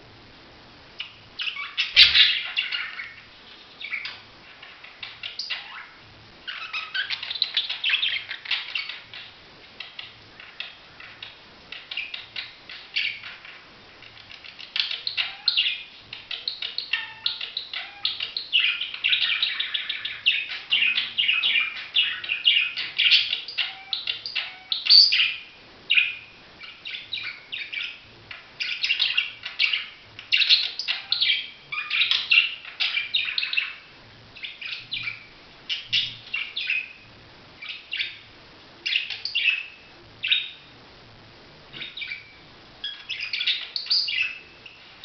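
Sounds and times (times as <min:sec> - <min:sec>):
budgerigar chattering and warbling: 0:01.0 - 0:03.2.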